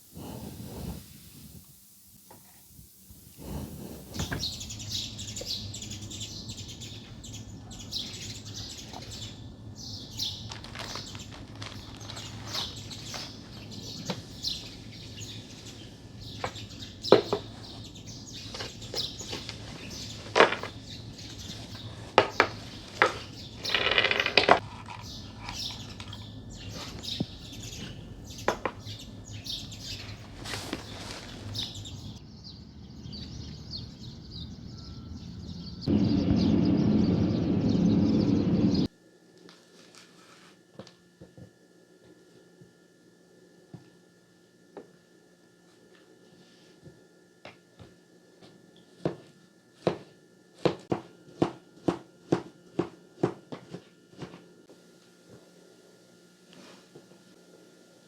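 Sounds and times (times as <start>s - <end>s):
small birds chirping: 2.7s - 38.9s
objects being handled: 10.4s - 14.3s, 18.4s - 27.0s
loud steady rushing noise: 35.9s - 38.9s.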